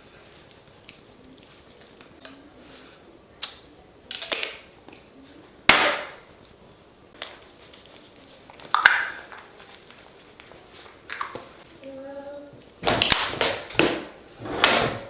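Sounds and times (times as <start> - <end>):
utensils and dishes clattering: 8.4 - 11.6, 12.8 - 15.0.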